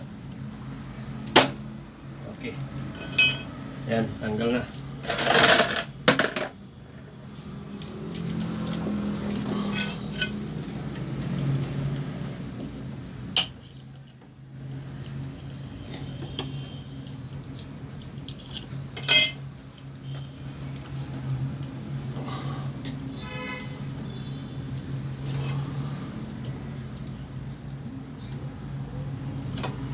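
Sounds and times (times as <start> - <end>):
metal tools clinking and clicking: 2.9 - 3.6, 5.1 - 6.5, 7.6 - 10.5, 18.0 - 20.2, 25.2 - 25.8.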